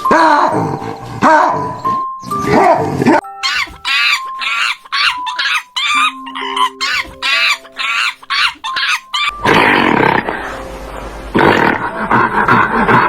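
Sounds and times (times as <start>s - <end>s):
background music notes: 0.0s - 13.0s
animal calling: 3.4s - 10.6s.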